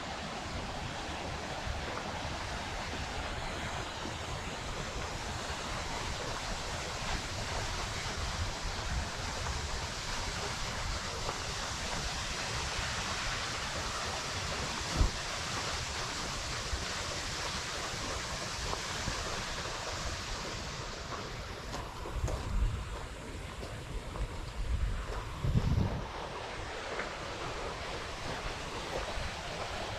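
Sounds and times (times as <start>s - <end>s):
waterfall rushing: 0.0s - 22.2s, 26.0s - 29.9s
wind buffeting microphone: 0.0s - 29.9s.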